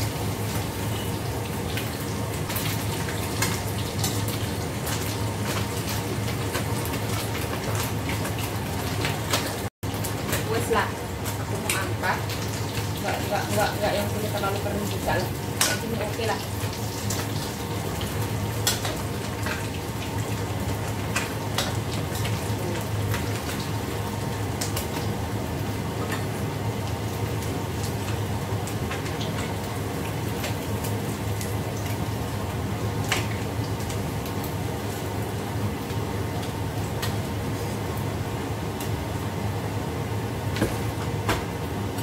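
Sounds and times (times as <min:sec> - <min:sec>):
food sizzling in sauce: 0:00.0 - 0:42.0.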